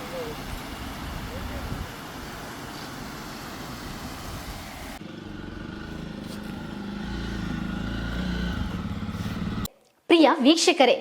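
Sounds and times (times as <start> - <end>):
engine low hum: 2.8 - 9.7.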